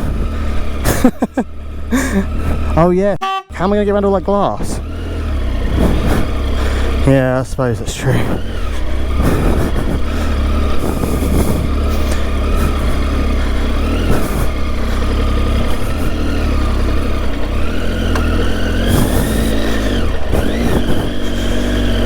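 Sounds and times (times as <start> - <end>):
heavy low rumble: 0.0 - 22.0
motorcycle engine: 0.0 - 22.0.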